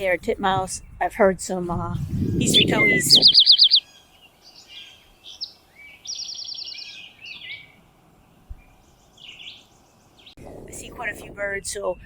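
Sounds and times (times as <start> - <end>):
songbird trilling: 2.3 - 7.8
bird chirps: 2.4 - 10.4.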